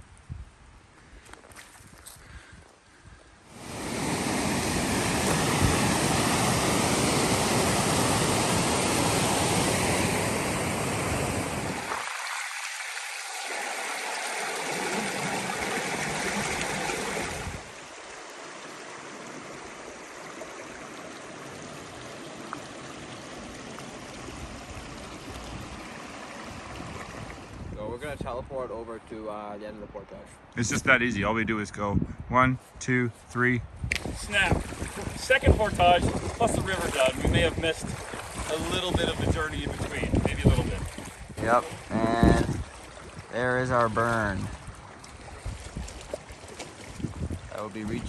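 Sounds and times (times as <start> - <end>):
rushing river water: 3.5 - 27.8, 34.0 - 48.0.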